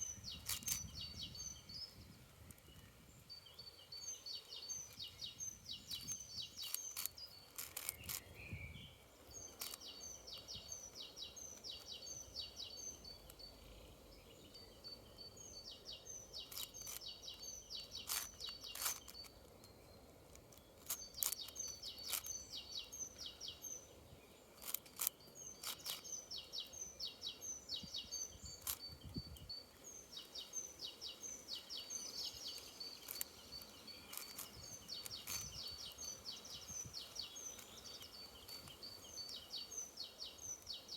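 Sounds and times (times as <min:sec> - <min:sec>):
bird chirping: 0:00.0 - 0:40.9
puzzle cube clicking: 0:00.4 - 0:01.2, 0:05.8 - 0:08.3, 0:09.5 - 0:10.5, 0:16.4 - 0:17.1, 0:17.8 - 0:19.6, 0:20.3 - 0:22.4, 0:24.6 - 0:26.1, 0:28.6 - 0:28.9, 0:32.5 - 0:36.0.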